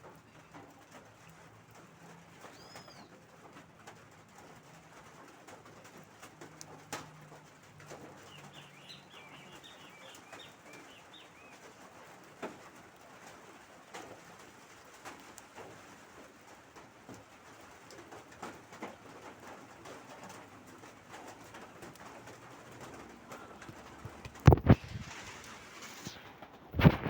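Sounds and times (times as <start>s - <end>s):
rain drops tapping: 0.0s - 27.0s
high bird chirps: 8.3s - 11.5s.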